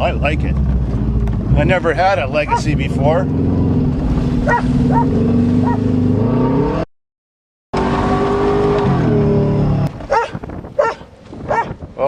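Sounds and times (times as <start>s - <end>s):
car engine accelerating: 0.0s - 6.9s, 7.8s - 10.3s
dog barking: 2.5s - 2.7s, 4.4s - 5.8s, 10.1s - 11.8s.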